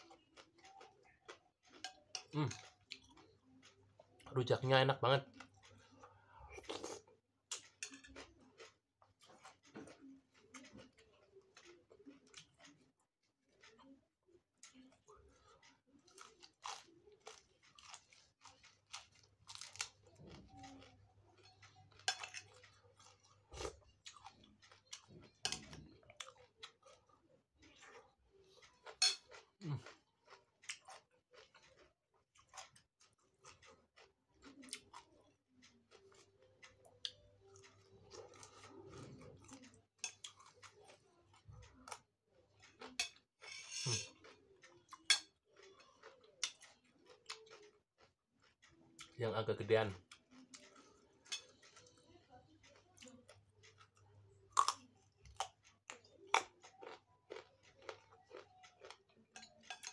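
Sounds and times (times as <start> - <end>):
chewing and crunching leaves: 0.0 - 14.0, 14.6 - 59.9
chewing leaves with crunches: 15.5 - 25.1, 56.4 - 59.0.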